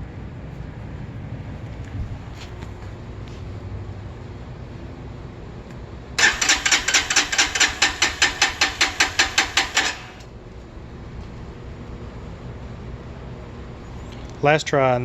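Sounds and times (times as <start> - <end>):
electric starter cranking engine: 6.2 - 10.3.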